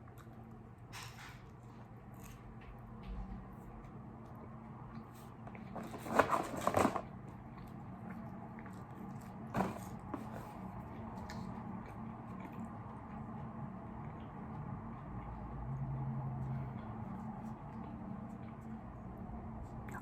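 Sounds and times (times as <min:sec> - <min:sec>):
faint chewing clicks: 0:00.0 - 0:03.0, 0:10.7 - 0:20.0.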